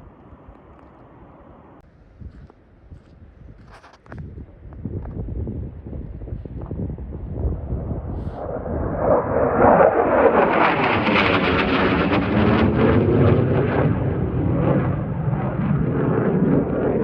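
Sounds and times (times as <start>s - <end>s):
fighter jet roaring overhead: 7.0s - 17.0s.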